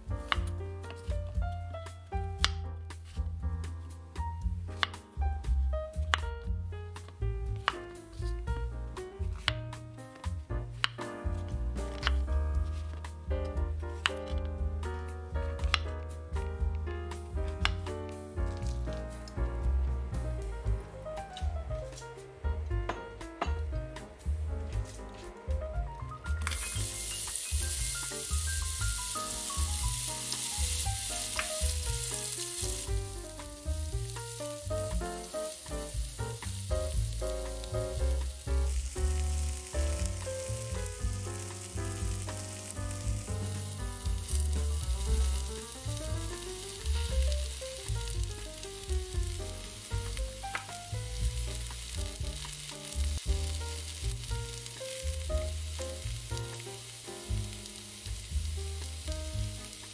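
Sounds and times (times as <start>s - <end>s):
background music with bass: 0.0s - 59.9s
onions sizzling in oil: 26.3s - 59.9s.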